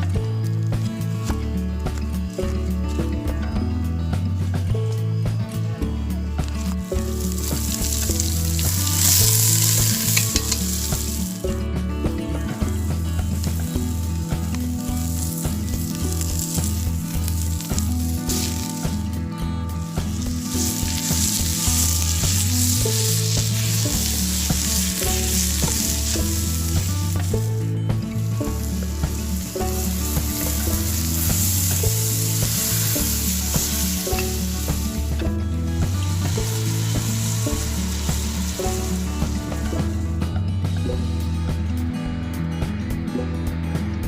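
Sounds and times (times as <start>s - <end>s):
background music with bass line: 0.0s - 44.0s
food sizzling in a pan: 6.6s - 11.5s, 12.5s - 19.0s, 19.9s - 40.1s.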